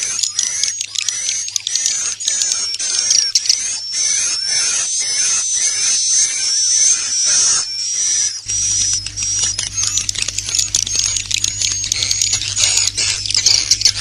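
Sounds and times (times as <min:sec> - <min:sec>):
low hum: 0:08.5 - 0:14.0
quick clicks: 0:08.5 - 0:14.0
swiftlets chirping and trilling: 0:08.5 - 0:14.0.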